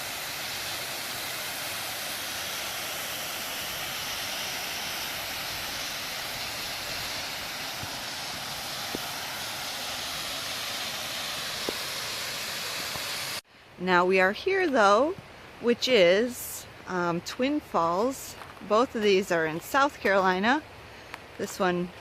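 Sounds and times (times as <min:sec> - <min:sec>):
waterfall rushing: 0:00.0 - 0:13.4.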